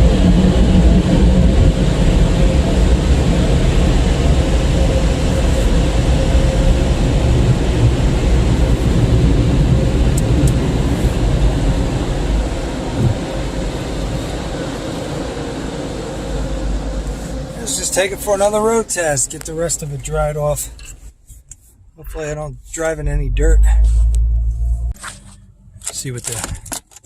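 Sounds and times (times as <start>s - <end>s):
car wash equipment rushing: 0.0s - 21.0s.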